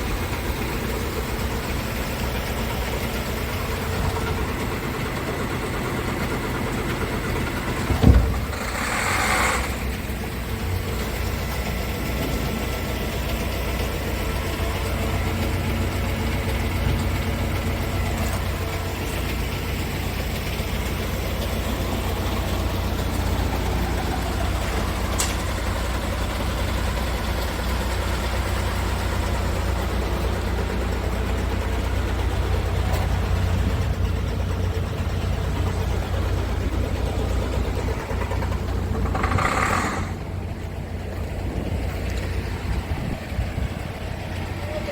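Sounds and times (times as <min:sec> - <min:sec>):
diesel truck engine idling: 0:00.0 - 0:44.9
loud thump: 0:07.8 - 0:09.0.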